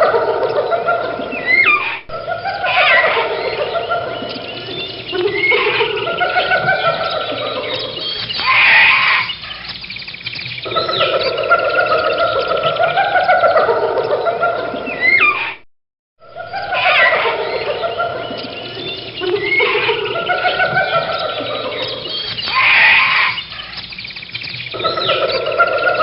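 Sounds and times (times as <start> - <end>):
gorilla screeching and screaming: 1.4 - 3.8, 4.7 - 9.7, 15.0 - 15.6, 16.4 - 17.9, 19.3 - 21.8, 22.4 - 23.8.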